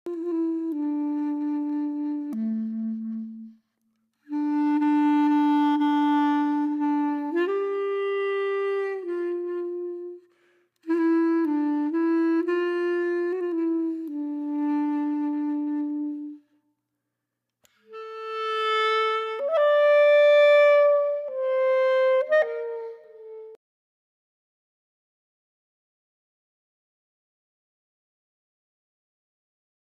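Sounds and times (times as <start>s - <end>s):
solo woodwind slow melody: 0.1s - 16.6s, 17.6s - 23.6s.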